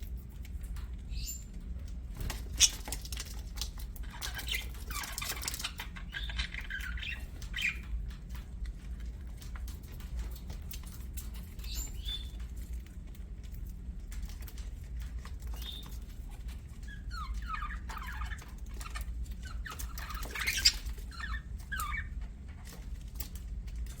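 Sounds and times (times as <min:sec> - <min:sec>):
low steady hum: 0:00.0 - 0:24.0
budgerigars chirping: 0:02.5 - 0:02.9, 0:04.1 - 0:07.9, 0:16.9 - 0:22.2.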